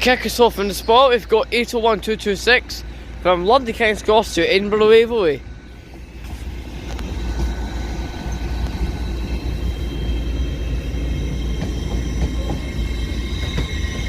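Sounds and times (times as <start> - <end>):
electric train rumbling: 0.0 - 14.0
high whining tones: 3.6 - 14.0.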